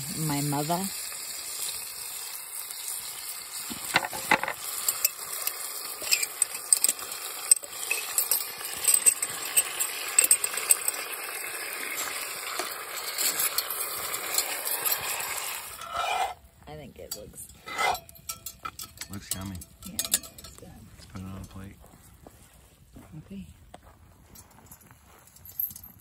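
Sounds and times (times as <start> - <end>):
food sizzling in a pot: 0.0 - 16.4
metal utensil scraping a pan: 3.6 - 16.4, 17.0 - 20.6.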